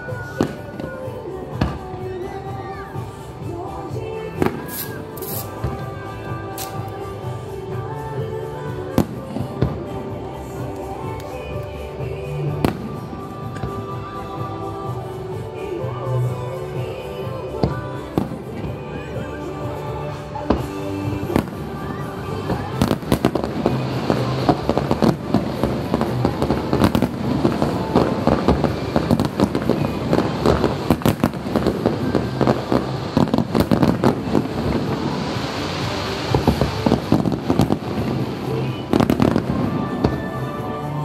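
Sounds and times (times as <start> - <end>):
crackling hiss of sparkles: 0.0 - 41.0
music: 0.0 - 41.0
fireworks booms and cracks: 20.5 - 41.0.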